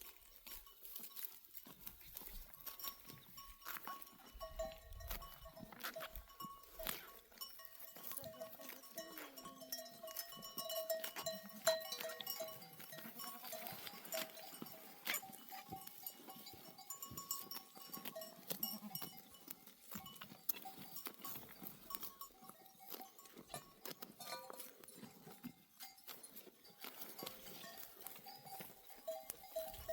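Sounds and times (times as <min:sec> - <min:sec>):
animal bells clinking: 0:00.0 - 0:29.9
sheep bleating: 0:12.9 - 0:14.2, 0:18.4 - 0:19.2.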